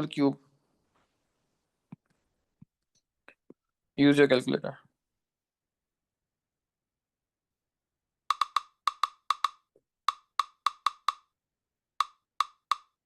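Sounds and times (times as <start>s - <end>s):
calculator keys clicking: 8.3s - 11.2s, 12.0s - 12.9s.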